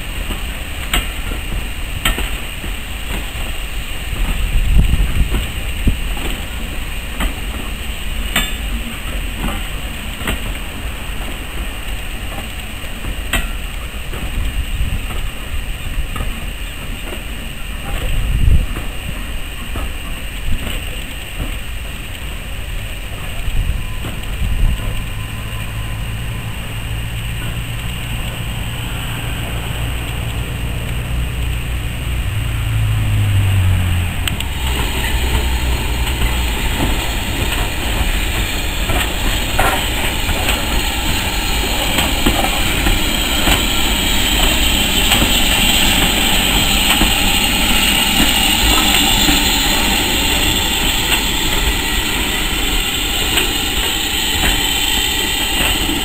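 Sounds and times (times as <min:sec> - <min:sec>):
train coaches rolling on rails: 0:00.0 - 0:56.0
low engine drone: 0:23.8 - 0:56.0.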